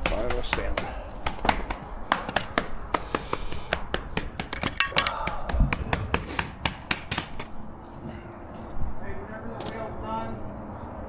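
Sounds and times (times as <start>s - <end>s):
stamp mats knocking on concrete: 0.0s - 7.5s.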